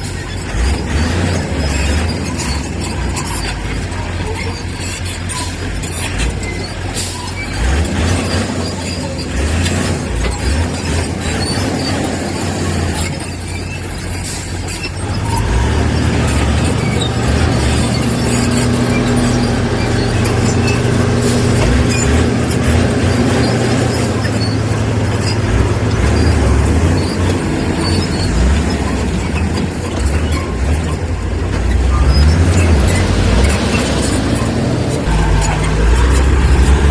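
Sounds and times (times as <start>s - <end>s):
heavy machine diesel engine: 0.0s - 36.9s
metal clanks and knocks: 0.0s - 36.9s.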